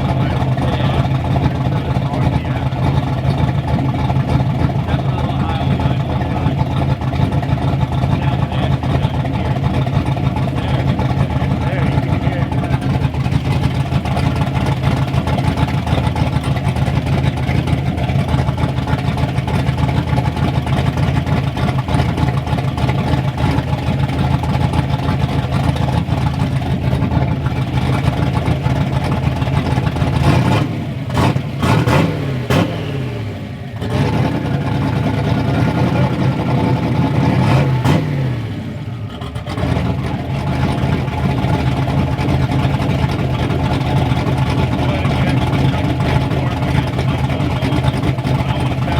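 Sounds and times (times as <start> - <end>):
turbocharged engine idling and revving: 0.0 - 48.9.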